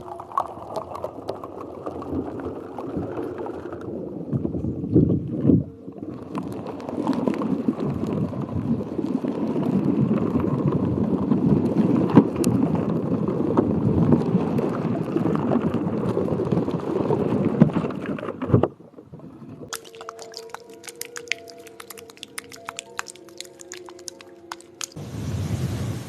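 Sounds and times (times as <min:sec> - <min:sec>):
water sloshing and gurgling: 0:17.0 - 0:25.0
rapid light tapping: 0:19.7 - 0:25.0.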